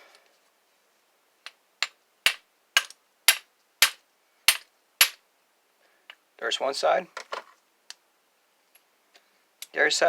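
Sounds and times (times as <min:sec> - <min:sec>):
hammer striking padlock: 0:02.3 - 0:05.2.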